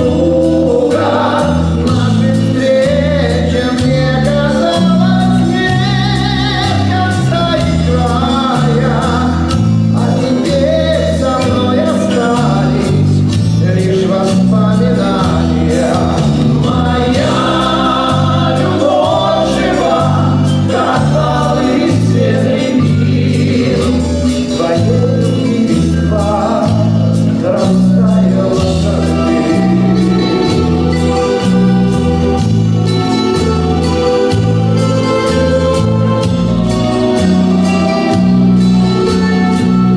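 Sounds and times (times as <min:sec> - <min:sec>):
band playing a love song: 0:00.0 - 0:39.9
bass line: 0:00.0 - 0:39.9
lead and group vocals: 0:00.0 - 0:39.9.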